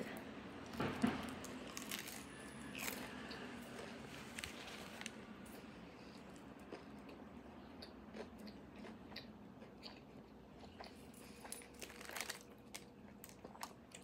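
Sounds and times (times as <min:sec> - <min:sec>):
chewing with mouth clicks: 0:05.5 - 0:14.0.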